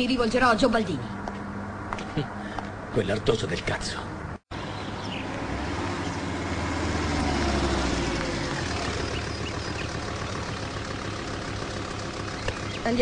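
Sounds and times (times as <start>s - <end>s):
car engine idling: 4.5s - 13.0s.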